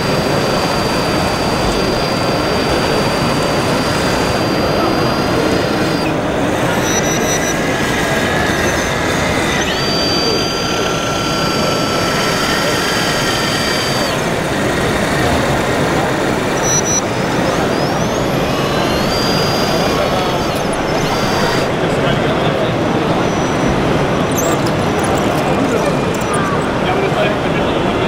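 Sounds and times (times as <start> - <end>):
electric motors whining: 0.0 - 27.5
crowd chatter: 0.0 - 28.0.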